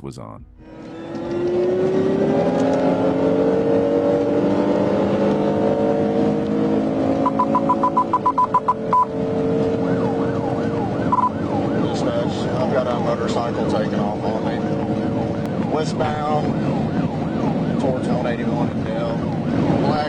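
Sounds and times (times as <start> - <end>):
car engine accelerating hard: 0.6 - 20.0
police siren warbling: 5.4 - 20.0
short even beeps: 7.2 - 9.1, 11.1 - 11.3.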